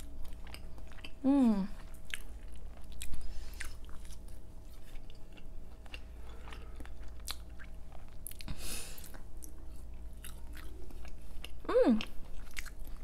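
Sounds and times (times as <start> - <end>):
steady low hum: 0.0 - 13.0
wet chewing mouth sounds: 0.0 - 13.0.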